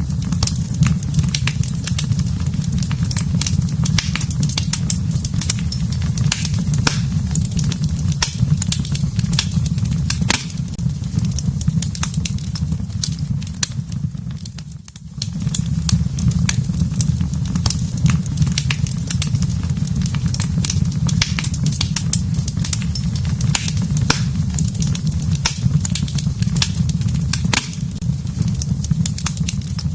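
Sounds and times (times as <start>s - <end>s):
fire crackles and pops: 0.0s - 29.9s
fire rumbling in a fireplace: 0.0s - 29.9s.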